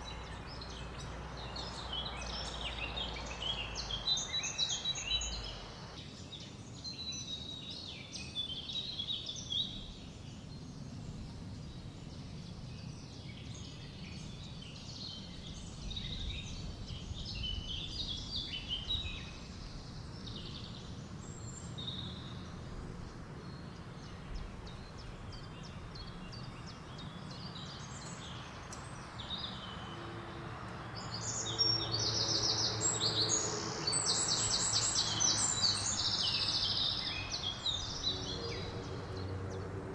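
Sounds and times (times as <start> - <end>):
birds chirping and singing: 0.0 - 6.0, 24.3 - 39.9.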